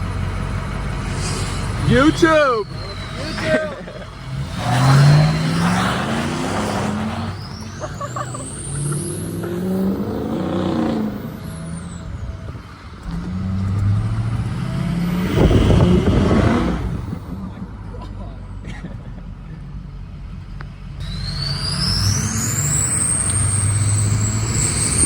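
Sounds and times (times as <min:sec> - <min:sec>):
truck engines revving: 0:00.0 - 0:25.0
loud rush of noise: 0:01.0 - 0:02.6.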